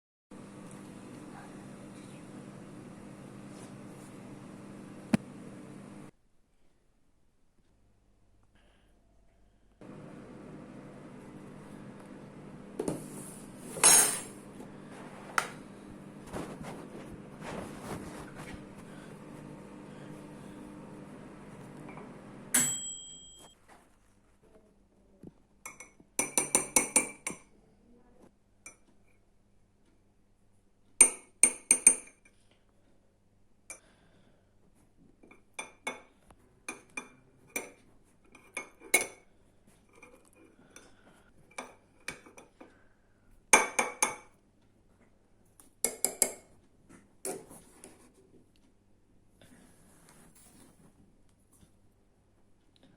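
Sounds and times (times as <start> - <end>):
cutlery clinking against dishes: 13.7 - 14.4
steady hum: 14.4 - 22.8.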